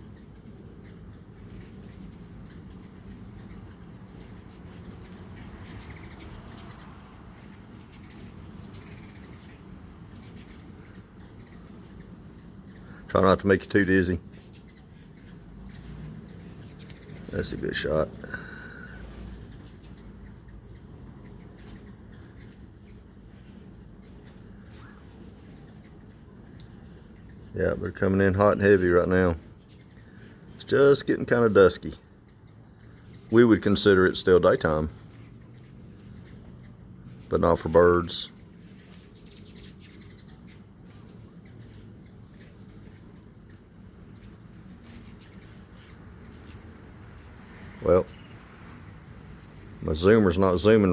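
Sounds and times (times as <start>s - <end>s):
faint low hum: 0.0s - 50.9s
hummingbirds chipping: 0.0s - 50.9s.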